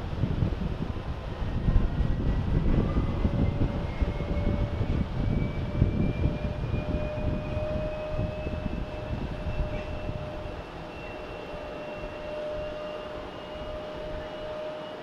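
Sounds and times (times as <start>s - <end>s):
jet engines rumbling and whining: 0.0s - 15.0s.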